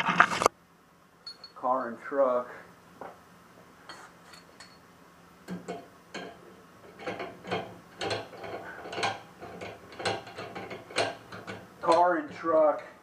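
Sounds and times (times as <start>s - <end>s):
metal fittings clicking and clinking: 5.5s - 12.2s.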